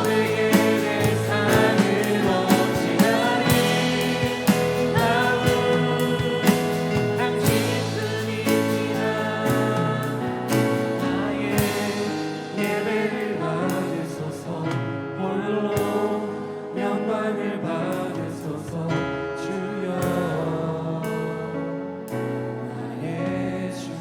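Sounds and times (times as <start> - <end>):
band playing: 0.0 - 13.2
drum and cymbal strikes: 0.0 - 14.1
voices singing: 0.0 - 21.5.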